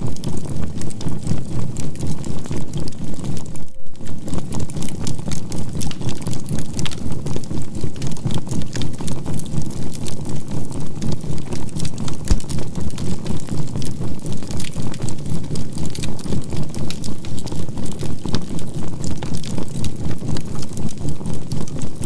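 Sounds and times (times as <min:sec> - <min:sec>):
low hum: 0:00.0 - 0:06.3
campfire crackling: 0:00.0 - 0:22.0.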